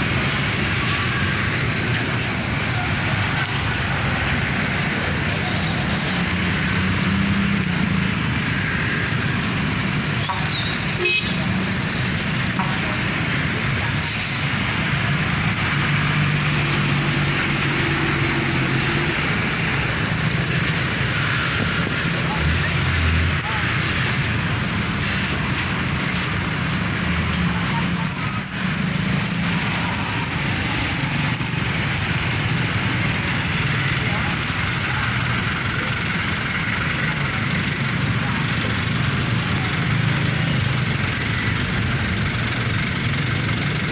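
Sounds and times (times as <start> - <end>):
heavy road traffic rumble: 0.0 - 43.9
vehicle engine running nearby: 0.0 - 43.9
vehicle horn toot: 10.5 - 11.9.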